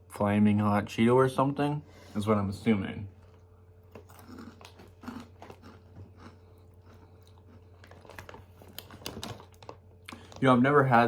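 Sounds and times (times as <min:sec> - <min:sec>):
steady low hum: 0:00.0 - 0:11.0
person chewing crunchy snacks: 0:03.2 - 0:10.4.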